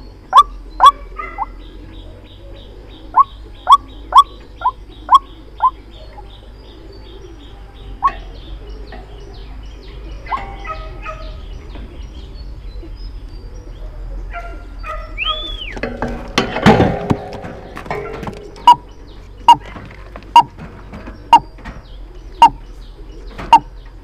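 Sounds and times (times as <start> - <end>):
waterhen calls: 0.3 - 1.6, 3.1 - 6.2, 14.9 - 15.8, 18.0 - 19.7, 20.3 - 20.6, 22.4 - 22.6, 23.5 - 23.7.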